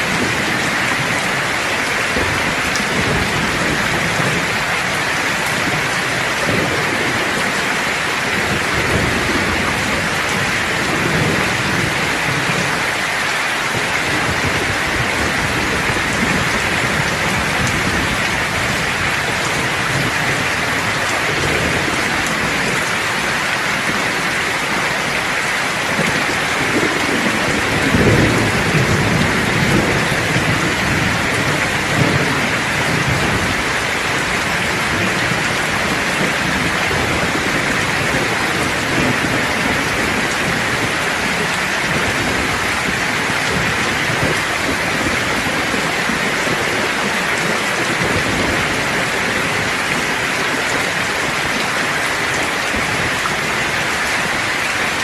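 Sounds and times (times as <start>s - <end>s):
heavy rain pouring: 0.0s - 55.0s
thunder rolling: 13.8s - 50.7s.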